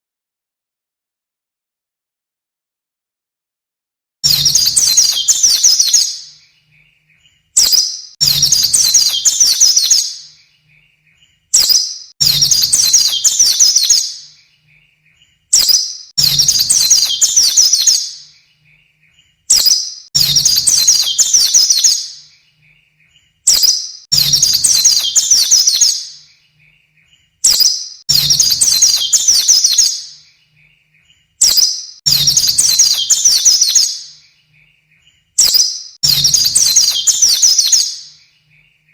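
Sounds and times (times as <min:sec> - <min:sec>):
high-pitched bird twittering: 0:04.2 - 0:38.9.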